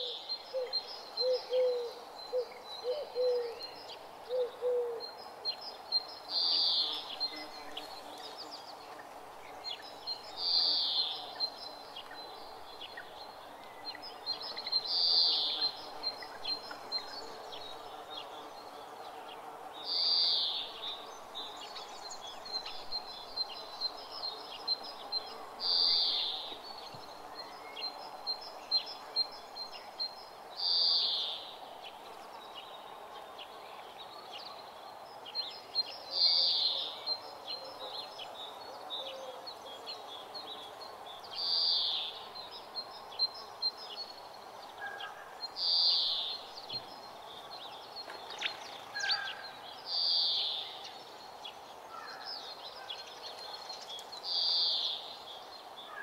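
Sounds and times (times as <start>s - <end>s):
bird singing loud high song: 0.0s - 56.0s
faint outdoor background: 0.0s - 56.0s.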